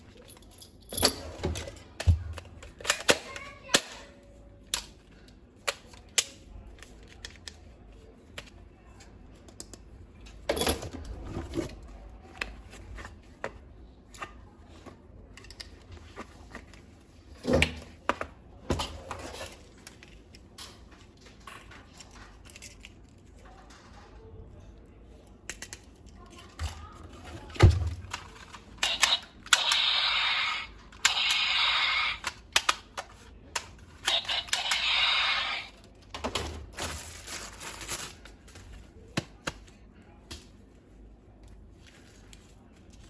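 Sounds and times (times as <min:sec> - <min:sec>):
plastic toy parts clicking: 0:21.9 - 0:23.1, 0:25.5 - 0:26.7, 0:28.0 - 0:35.8.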